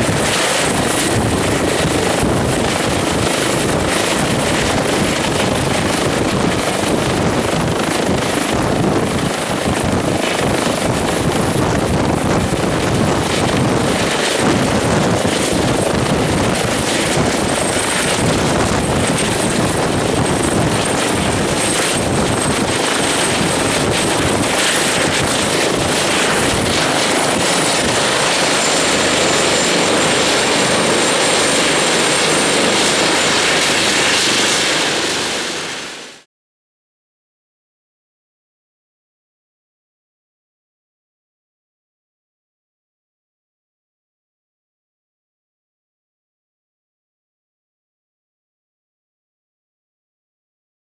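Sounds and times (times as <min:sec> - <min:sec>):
helicopter turbine and rotor: 0:00.0 - 0:36.3.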